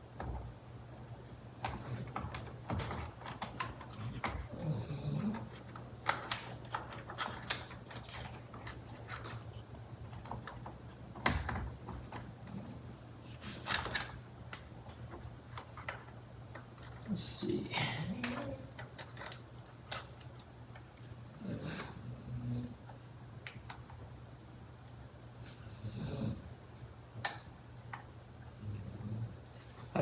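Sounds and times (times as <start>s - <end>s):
faint low hum: 0.0s - 30.0s
wiring rustling: 1.2s - 21.4s.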